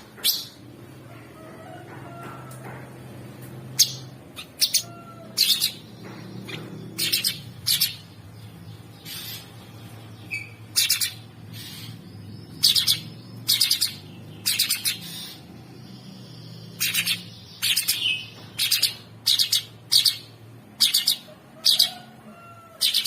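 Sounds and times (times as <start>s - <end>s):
songbird harsh chattering song: 3.7s - 22.1s.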